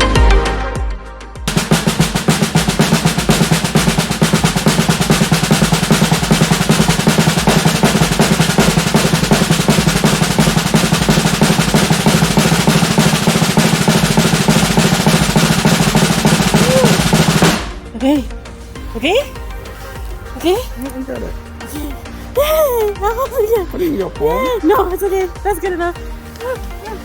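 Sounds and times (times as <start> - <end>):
snare drum roll: 1.5 - 18.4.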